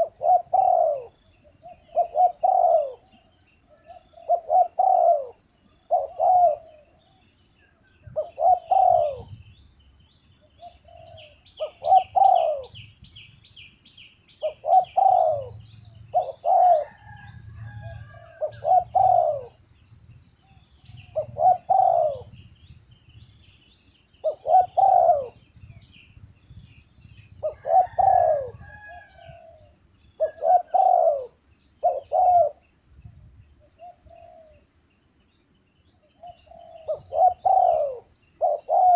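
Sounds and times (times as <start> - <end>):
dove cooing: 0.0 - 7.3, 8.0 - 9.5, 10.4 - 12.9, 14.4 - 19.7, 20.4 - 22.5, 24.2 - 25.9, 27.1 - 32.8, 33.6 - 34.6, 36.0 - 38.9
small birds chirping: 0.0 - 38.9.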